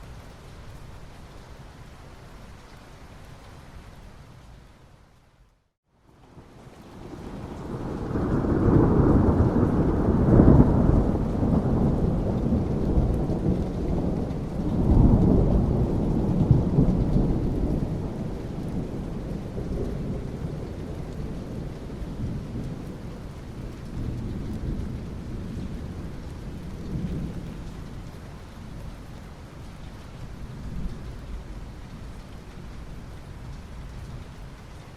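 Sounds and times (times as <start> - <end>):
steady rain: 0.0 - 34.9
thunder rumbling: 7.0 - 28.0.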